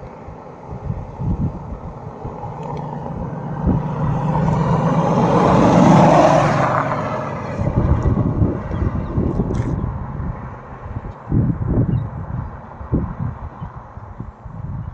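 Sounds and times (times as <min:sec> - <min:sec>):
vehicle driving past: 0:01.2 - 0:11.1.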